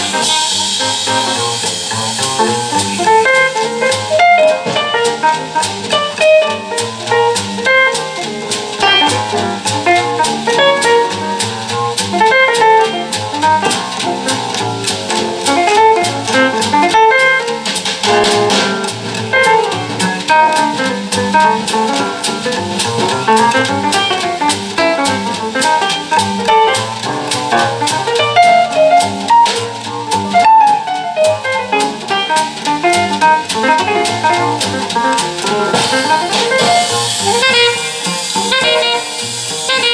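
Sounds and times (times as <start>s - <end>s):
jazz with guitar and drums: 0.0s - 39.9s.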